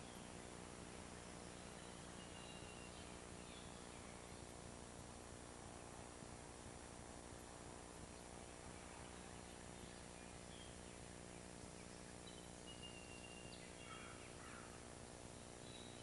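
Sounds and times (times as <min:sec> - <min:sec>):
faint bird calls: 0:00.0 - 0:04.6, 0:08.1 - 0:16.0
steady hiss and low hum: 0:00.0 - 0:16.0.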